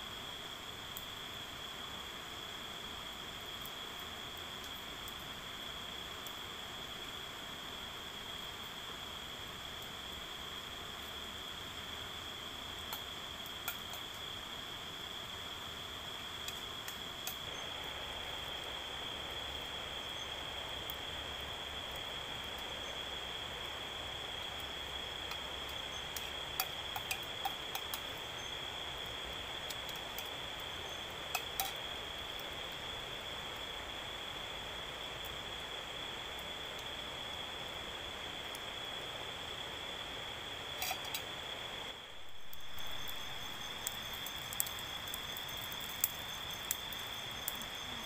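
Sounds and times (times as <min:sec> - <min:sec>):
high-pitched insect drone: 0:42.4 - 0:48.0.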